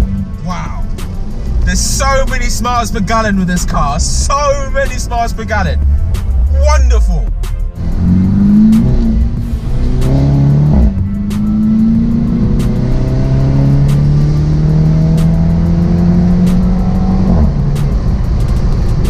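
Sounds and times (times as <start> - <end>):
car engine accelerating hard: 7.7 - 19.0.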